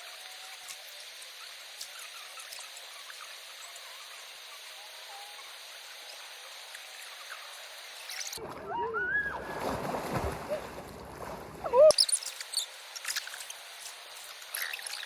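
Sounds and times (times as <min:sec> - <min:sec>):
person calling out: 0:11.6 - 0:12.0.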